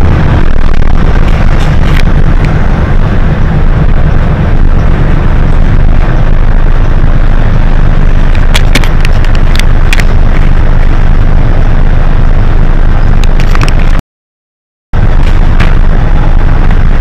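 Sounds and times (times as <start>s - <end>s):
bus engine and road rumble: 0.0s - 14.0s, 15.0s - 17.0s
sharp clicks or rattles: 8.3s - 10.5s.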